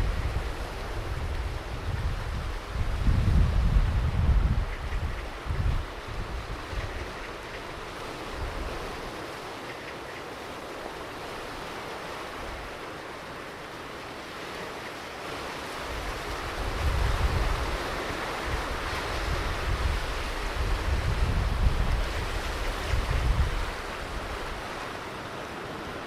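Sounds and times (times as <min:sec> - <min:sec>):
wind buffeting microphone: 0:00.0 - 0:09.6, 0:15.6 - 0:26.0
ocean surf washing onto beach: 0:00.0 - 0:26.0.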